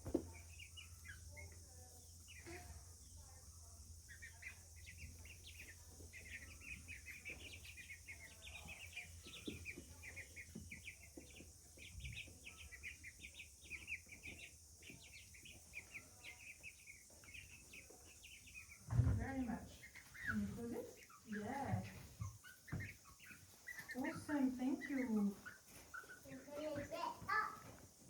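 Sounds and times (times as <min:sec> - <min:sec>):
baby chicks cheeping: 0:00.0 - 0:28.0
soft taps and rustles: 0:18.8 - 0:28.0.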